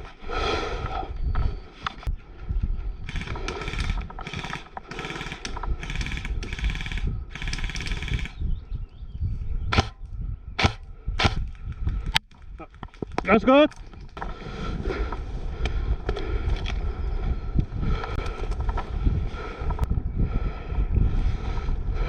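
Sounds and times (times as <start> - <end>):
airsoft rifle firing bursts: 3.1 - 8.3, 9.7 - 9.9, 10.6 - 11.4
airsoft rifle single snaps: 10.6 - 11.4.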